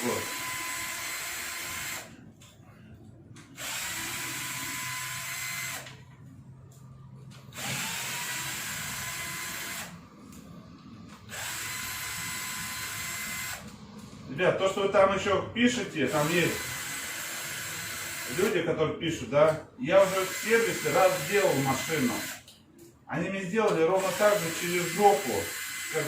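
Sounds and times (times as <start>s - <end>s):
drill-driver motor running: 0.0s - 2.1s, 3.6s - 6.0s, 7.5s - 10.0s, 11.3s - 13.7s, 16.1s - 18.6s, 20.0s - 22.4s, 24.0s - 26.0s.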